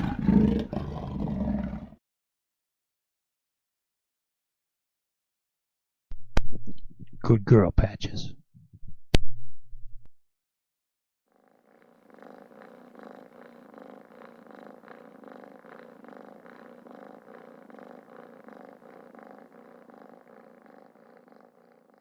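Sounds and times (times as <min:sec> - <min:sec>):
cat purring: 0:00.0 - 0:02.0, 0:11.3 - 0:22.0.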